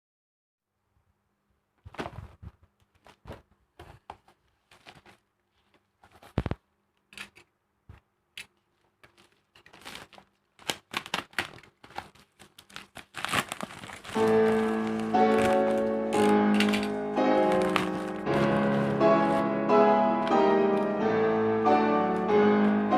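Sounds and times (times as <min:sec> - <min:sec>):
packaging crinkling and tearing: 0:09.0 - 0:19.5.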